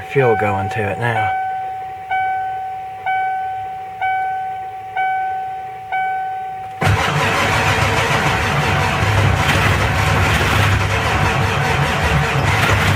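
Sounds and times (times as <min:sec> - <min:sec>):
truck warning chime dinging: 0:00.0 - 0:06.9
diesel engine cranking and running: 0:04.0 - 0:12.9.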